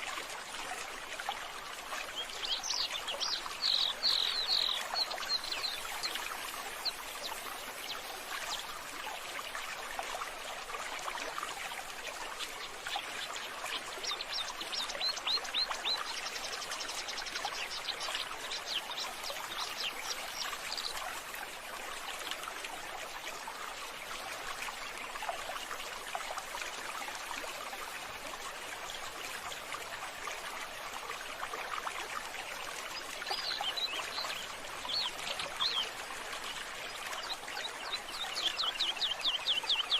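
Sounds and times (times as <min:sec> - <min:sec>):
running water: 0:00.0 - 0:39.9
small birds chirping: 0:02.2 - 0:08.7.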